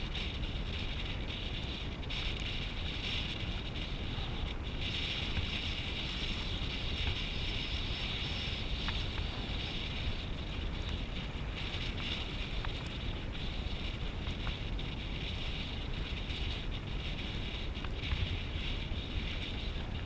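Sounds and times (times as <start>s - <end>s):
faint ticks: 0.0s - 20.0s
wind buffeting microphone: 0.0s - 20.0s.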